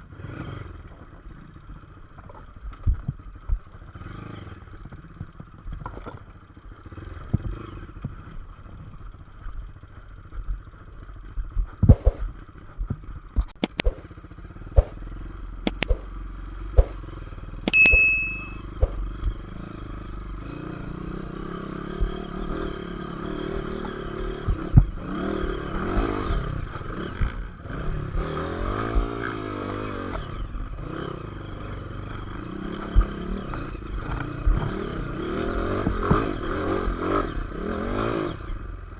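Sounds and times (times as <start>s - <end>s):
motorcycle engine running: 0.0s - 38.9s
sharp knocks and clicks: 11.8s - 12.2s, 13.4s - 14.1s, 14.8s - 15.0s, 15.7s - 16.1s
high beep: 17.7s - 19.0s.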